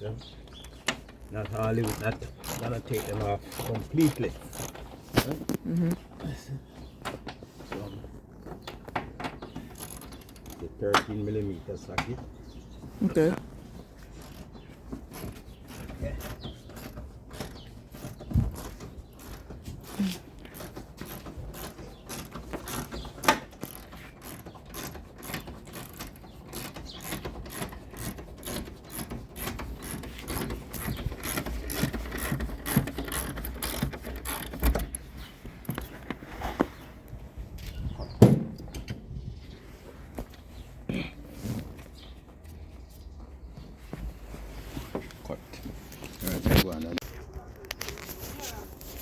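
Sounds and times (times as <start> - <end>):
ratchet wrench clicking: 1.8 - 4.8
tool knocking against metal: 38.2 - 38.9.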